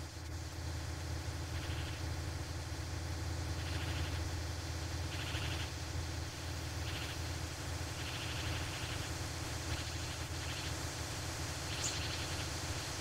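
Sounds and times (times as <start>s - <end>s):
low forest ambience rumble: 0.0s - 13.0s
bird twittering in fast trills: 1.4s - 2.2s, 3.4s - 4.3s, 5.0s - 5.8s, 6.7s - 10.9s, 11.6s - 12.7s.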